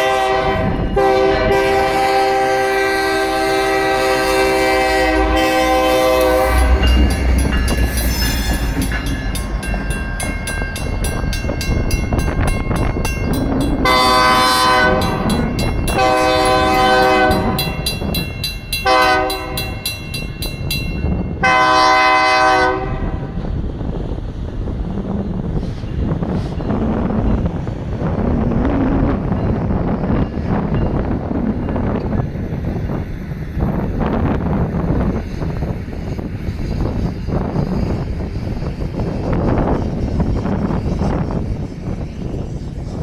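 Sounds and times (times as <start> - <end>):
locomotive air horn: 0.0 - 8.6, 13.8 - 17.8, 18.8 - 19.8, 21.4 - 23.4
locomotive engines rumbling: 0.0 - 43.0
crossing bell ringing: 3.2 - 22.2.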